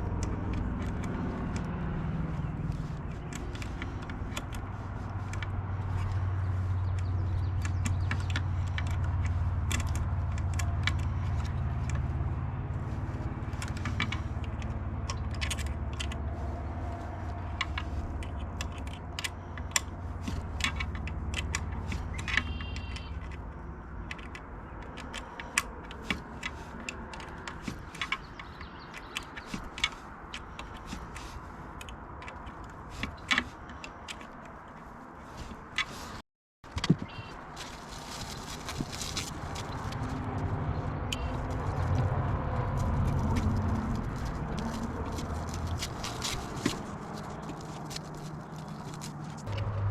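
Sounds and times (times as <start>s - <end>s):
low rumble: 37.8s - 48.2s, 48.8s - 49.9s.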